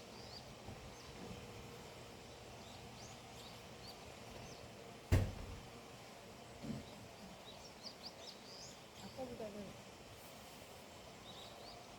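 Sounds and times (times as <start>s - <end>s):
small birds chirping: 0.0s - 4.8s, 6.6s - 9.9s, 10.8s - 11.9s
steady outdoor hiss: 0.0s - 11.9s.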